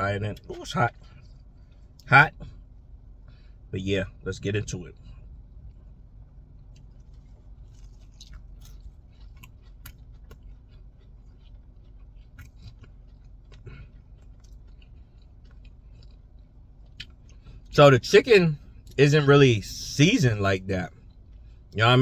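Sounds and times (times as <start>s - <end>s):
person chewing fried food: 0.3s - 3.7s, 5.0s - 17.7s, 20.8s - 21.8s.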